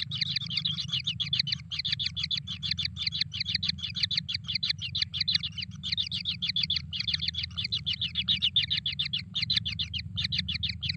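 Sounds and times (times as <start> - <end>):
bird chicks begging chirps: 0.0 - 10.9
steady low hum: 0.0 - 10.9.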